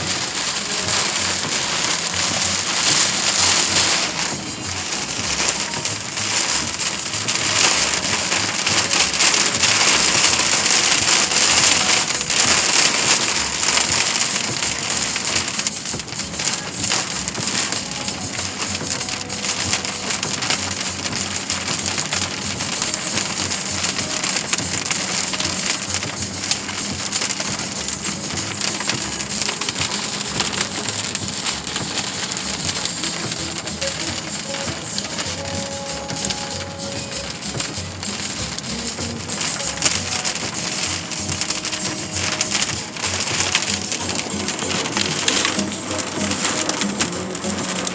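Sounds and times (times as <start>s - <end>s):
heavy rain pelting down: 0.0s - 47.9s.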